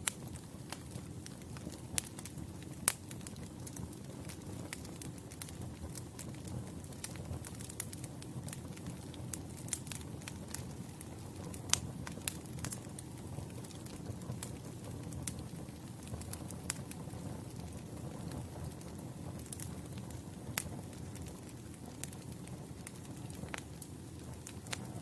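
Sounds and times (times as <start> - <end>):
burning logs crackling and popping: 0.0 - 25.0
campfire flames rumbling: 0.0 - 25.0.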